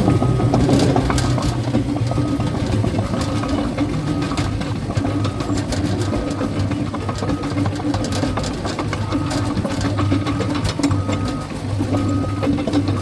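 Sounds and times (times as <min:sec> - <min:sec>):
bulldozer diesel engine running: 0:00.0 - 0:13.0
steel tracks clattering: 0:00.0 - 0:13.0.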